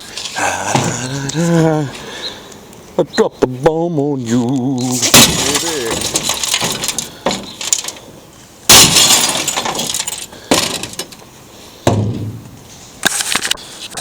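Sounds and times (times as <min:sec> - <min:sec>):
sledgehammer smashing television: 0:04.9 - 0:07.8, 0:08.7 - 0:11.0
glass and plastic breaking: 0:04.9 - 0:08.0, 0:08.7 - 0:11.2.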